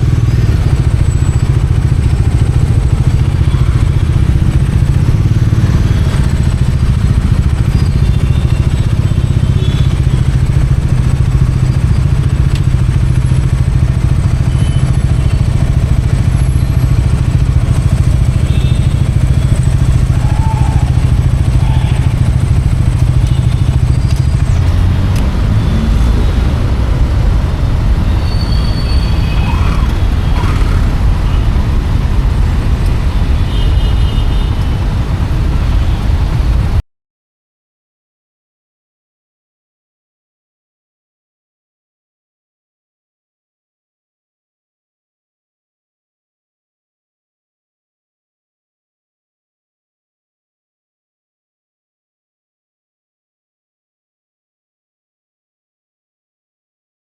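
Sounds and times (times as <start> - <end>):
motorcycle engine running: 0.0 - 36.8.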